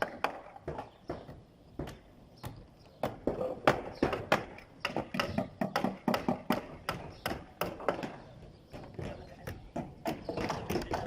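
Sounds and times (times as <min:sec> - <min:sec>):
hammers striking nails into wood: 0:00.0 - 0:08.2.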